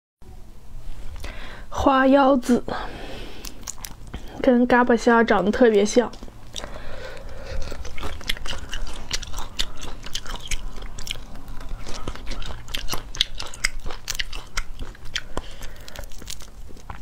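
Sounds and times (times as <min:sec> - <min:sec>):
crisp chewing crunches: 0:03.4 - 0:04.4, 0:06.1 - 0:17.0.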